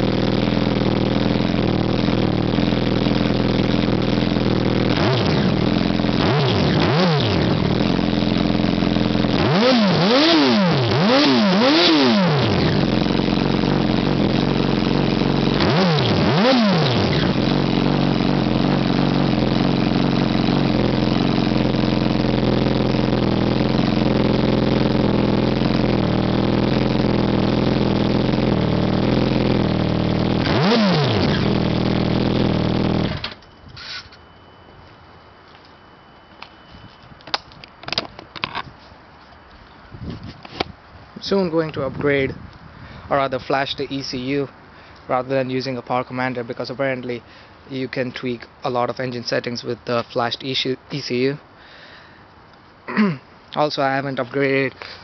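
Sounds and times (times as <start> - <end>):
motorcycle engine idling with throttle blips: 0.0 - 50.4.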